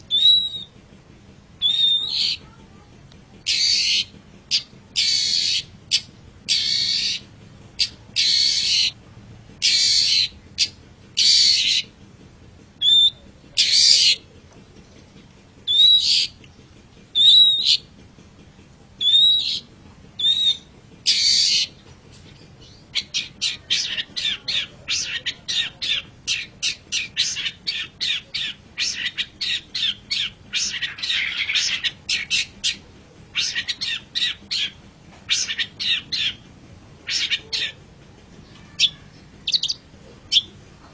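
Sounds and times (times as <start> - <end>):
bird rapid chatter: 0.0 - 0.8, 1.6 - 9.0, 9.6 - 12.0, 12.7 - 40.7
bird screeching calls: 0.1 - 0.7, 1.6 - 2.4, 3.5 - 7.2, 7.8 - 9.0, 9.6 - 11.8, 19.0 - 21.7, 22.9 - 32.8, 33.4 - 36.4, 37.0 - 37.8, 38.6 - 40.5.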